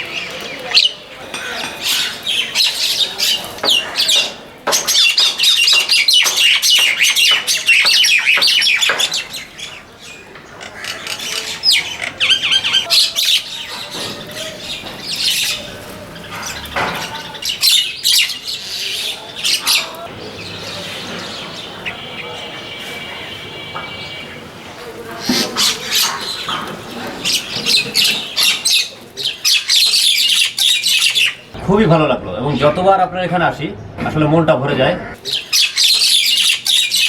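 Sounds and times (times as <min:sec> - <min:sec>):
songbirds calling: 0:00.0 - 0:31.6, 0:34.8 - 0:37.0.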